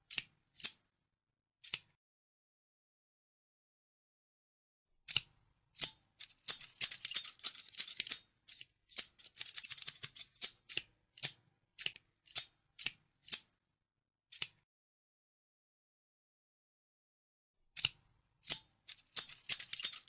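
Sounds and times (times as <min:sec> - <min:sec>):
scissors snipping: 0:00.0 - 0:00.8, 0:01.6 - 0:01.9, 0:05.1 - 0:13.5, 0:14.3 - 0:14.6, 0:17.8 - 0:20.0.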